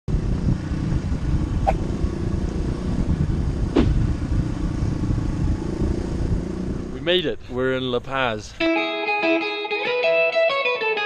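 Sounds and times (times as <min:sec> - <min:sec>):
motor vehicle rumbling: 0:00.1 - 0:08.6.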